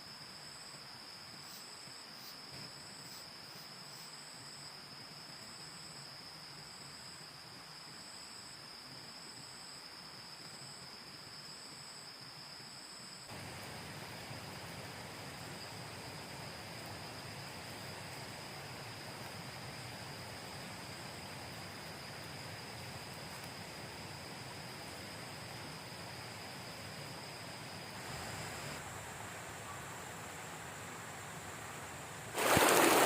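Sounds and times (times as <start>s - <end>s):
insects droning: 0.0s - 33.0s
rushing hiss: 27.9s - 29.5s, 32.2s - 33.0s.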